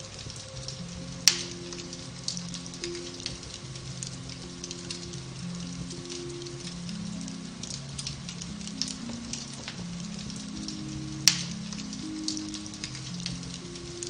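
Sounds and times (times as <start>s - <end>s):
soft music with low notes: 0.0s - 14.0s
wood fire crackling: 0.0s - 14.0s.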